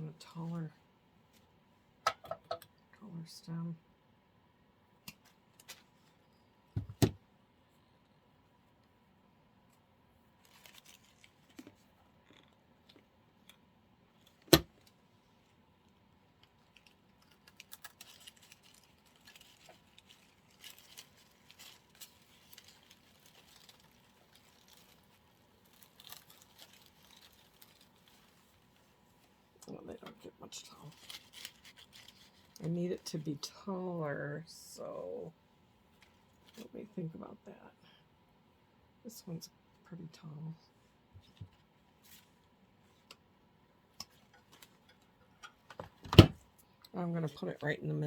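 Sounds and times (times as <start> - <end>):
plastic leaves rustling: 10.3 - 11.7, 16.4 - 33.2.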